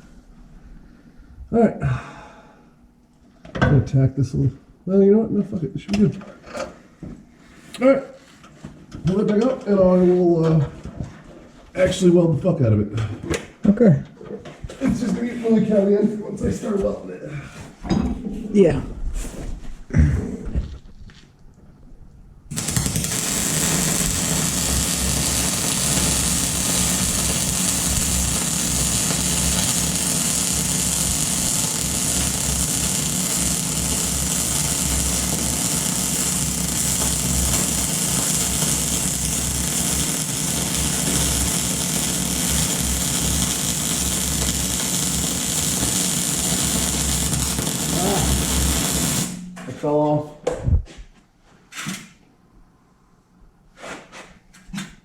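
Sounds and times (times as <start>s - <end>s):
low electrical hum: 0.0s - 53.8s
arc welder crackling: 22.5s - 49.6s.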